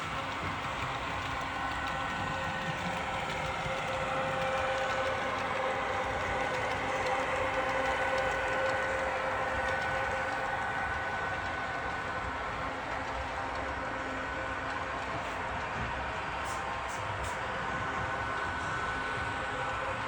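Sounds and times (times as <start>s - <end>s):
model train motor whine: 0.0s - 15.2s.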